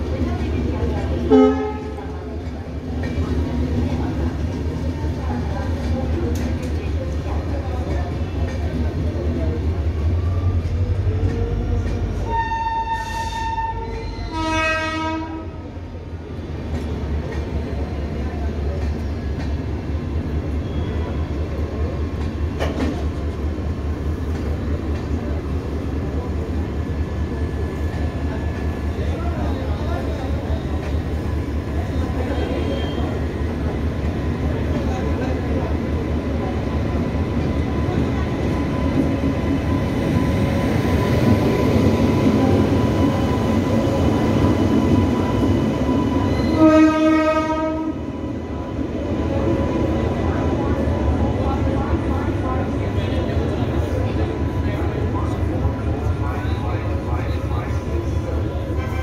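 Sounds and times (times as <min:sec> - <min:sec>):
train wheels rumbling on rails: 0:00.0 - 0:59.0
locomotive horn: 0:01.3 - 0:02.0, 0:12.2 - 0:15.6, 0:46.5 - 0:48.0.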